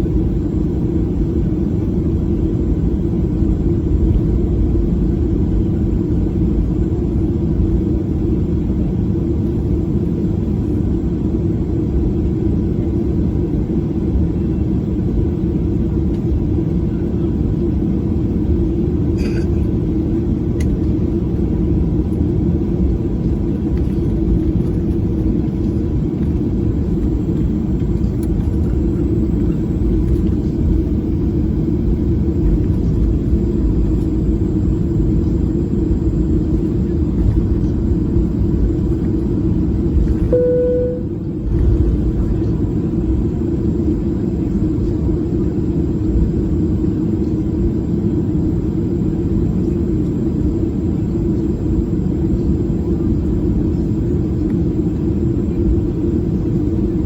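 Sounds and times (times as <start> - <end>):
airplane engines rumbling in cabin: 0.0 - 57.0.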